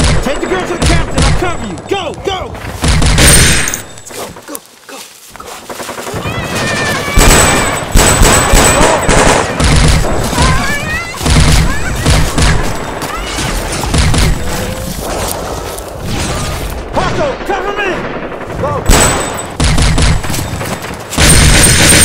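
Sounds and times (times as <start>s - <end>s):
rapid gunfire bursts: 5.6s - 13.0s, 13.6s - 15.2s, 17.3s - 22.0s.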